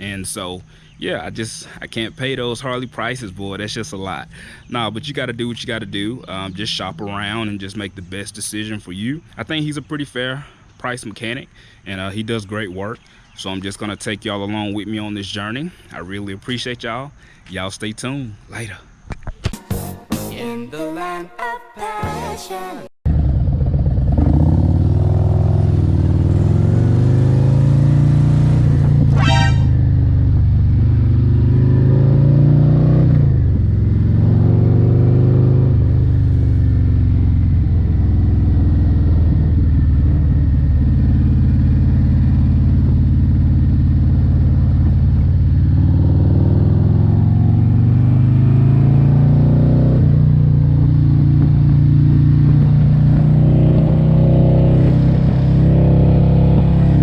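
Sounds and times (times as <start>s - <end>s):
motorcycle engine riding: 23.1s - 57.0s.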